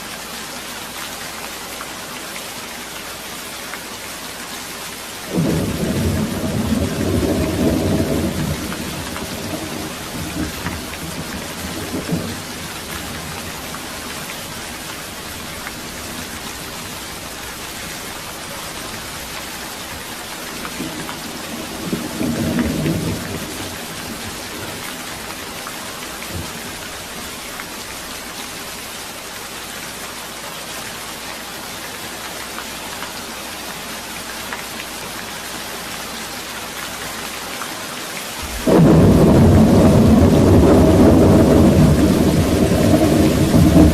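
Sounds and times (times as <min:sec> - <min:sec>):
steady rain: 0:00.0 - 0:43.9
thunder rumbling: 0:05.3 - 0:25.6, 0:38.4 - 0:43.9.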